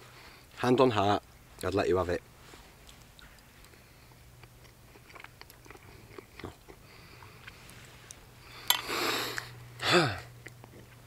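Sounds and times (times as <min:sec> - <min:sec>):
man chewing: 0:02.8 - 0:11.0.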